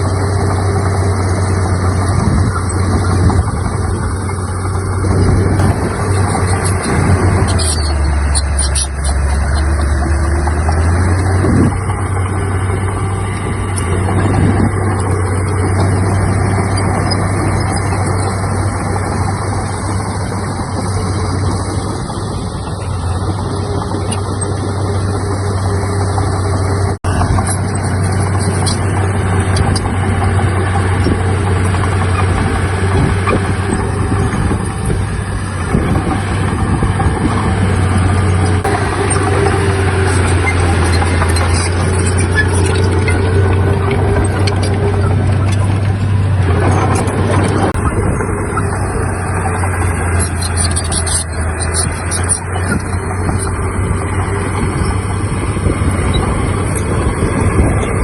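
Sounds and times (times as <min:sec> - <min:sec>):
diesel machinery engine drone: 0:00.0 - 0:58.0.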